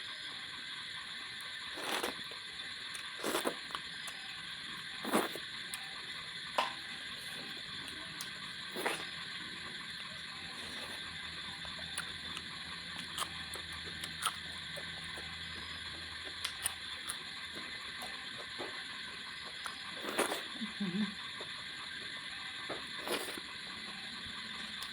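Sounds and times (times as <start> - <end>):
person chewing: 1.7 - 5.9, 7.2 - 9.1, 10.1 - 11.0, 11.6 - 17.2, 19.5 - 20.6, 22.9 - 23.4.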